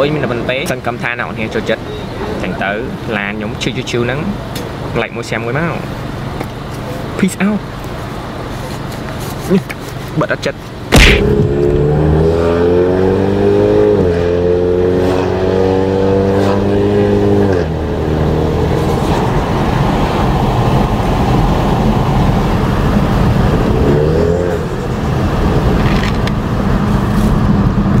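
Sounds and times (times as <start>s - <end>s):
road noise: 0.0s - 28.0s
car engine accelerating: 10.9s - 28.0s.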